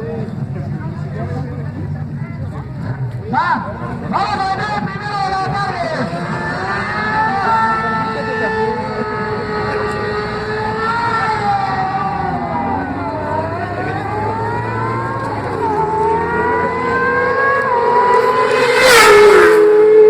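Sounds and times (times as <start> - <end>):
racing motorcycle engines accelerating: 0.0 - 20.0
motorcycle passing by: 5.9 - 20.0.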